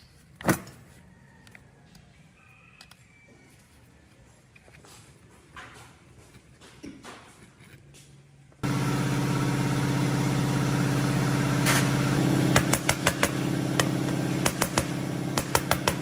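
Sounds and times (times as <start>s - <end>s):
lawn mower engine running: 8.6s - 16.0s.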